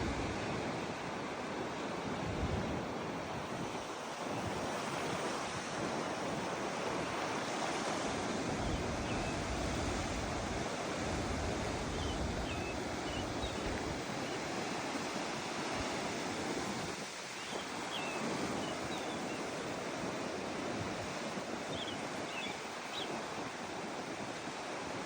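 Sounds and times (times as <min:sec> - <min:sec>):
strong wind buffeting microphone: 0:00.0 - 0:14.4.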